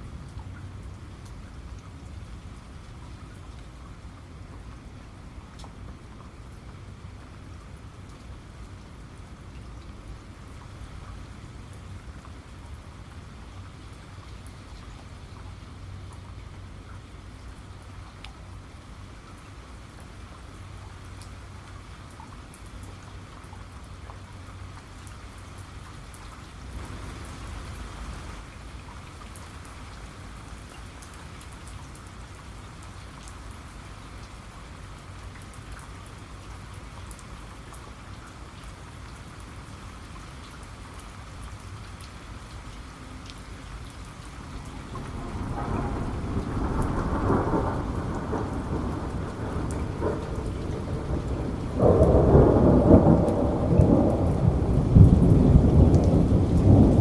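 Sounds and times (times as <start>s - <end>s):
rain falling: 0.0s - 57.0s
thunder rumbling: 44.7s - 57.0s.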